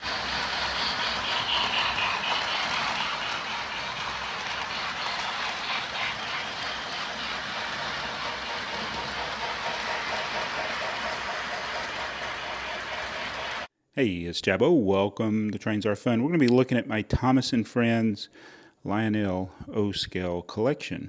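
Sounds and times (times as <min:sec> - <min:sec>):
toy train running on track: 0:00.0 - 0:13.7.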